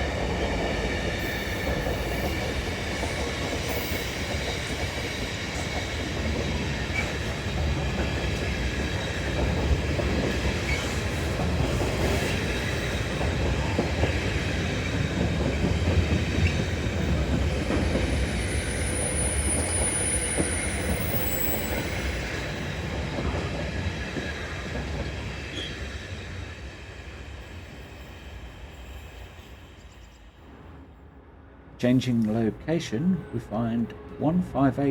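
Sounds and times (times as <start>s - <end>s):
freight train rumbling past: 0.0s - 34.9s.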